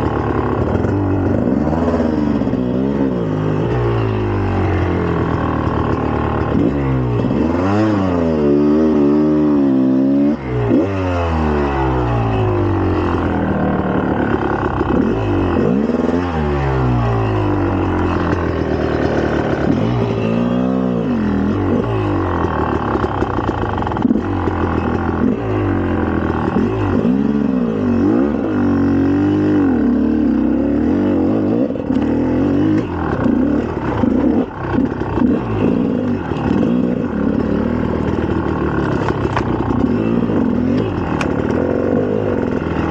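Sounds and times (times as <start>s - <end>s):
two-stroke engine revving: 0.0s - 42.9s
engine knocks: 32.7s - 42.9s.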